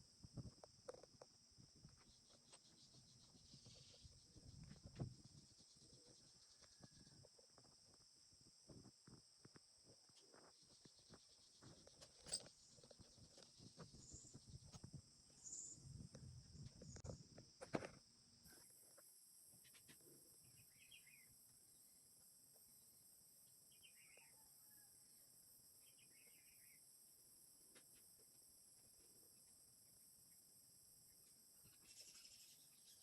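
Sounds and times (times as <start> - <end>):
faint high chirps: 31.1 - 33.0.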